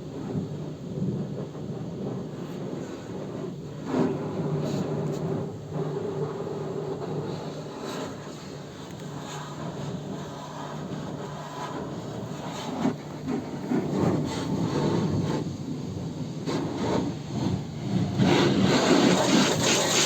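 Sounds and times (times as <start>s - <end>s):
car wash equipment hum: 0.0s - 20.0s
water spraying hiss: 14.2s - 20.0s.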